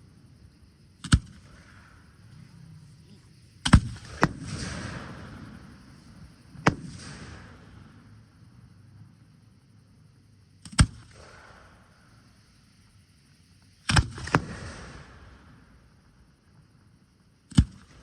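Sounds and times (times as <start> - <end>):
fireworks bangs: 1.6 - 8.1.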